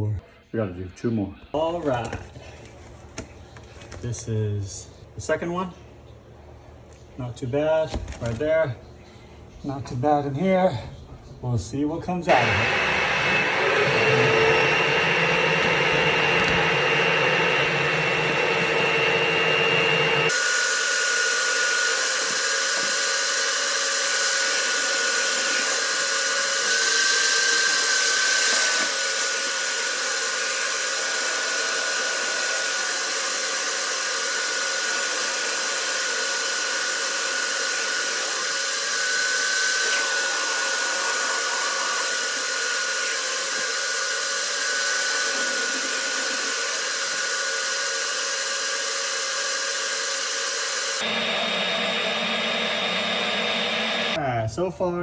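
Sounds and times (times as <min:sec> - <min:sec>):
high motor whine: 0:12.3 - 0:21.1, 0:51.0 - 0:54.2.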